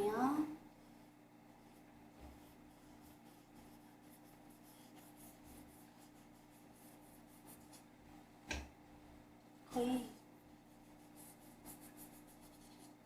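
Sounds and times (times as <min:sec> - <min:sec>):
low steady hum: 0:00.0 - 0:13.0
brush swishing across paper: 0:00.7 - 0:07.9, 0:10.5 - 0:13.0.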